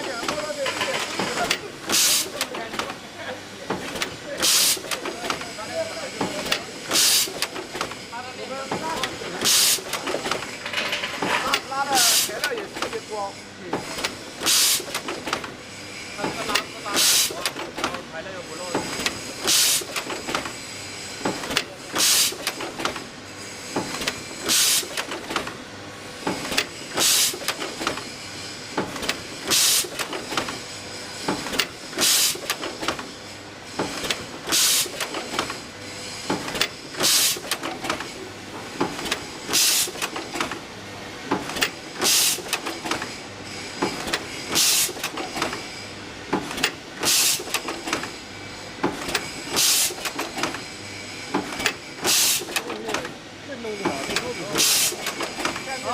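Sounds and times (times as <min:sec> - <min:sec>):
machine hissing bursts: 0:00.2 - 0:02.6, 0:03.9 - 0:10.6, 0:11.4 - 0:17.8, 0:18.4 - 0:25.5, 0:26.2 - 0:53.1, 0:53.8 - 0:55.9.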